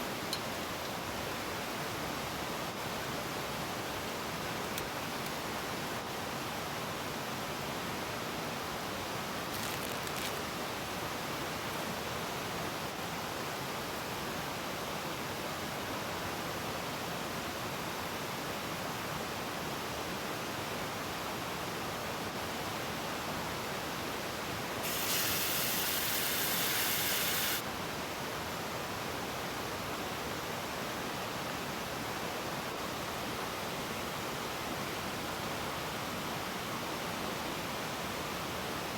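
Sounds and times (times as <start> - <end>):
high hiss: 24.8 - 27.7.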